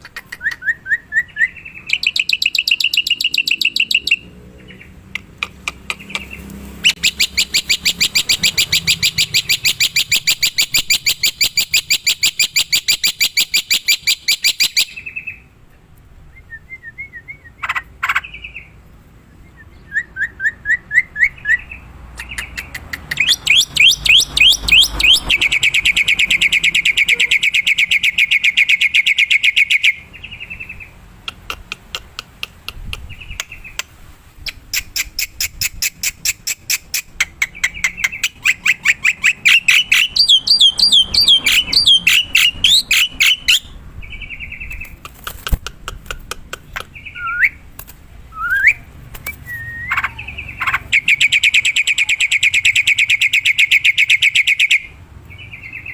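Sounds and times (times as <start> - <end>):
bird rapid sharp chirps: 0.0 - 15.4, 20.3 - 47.6, 48.4 - 55.9
bird whistles and slurred notes: 0.1 - 4.8, 5.9 - 15.4, 19.4 - 30.0, 34.5 - 45.0, 47.0 - 47.6, 48.3 - 54.9.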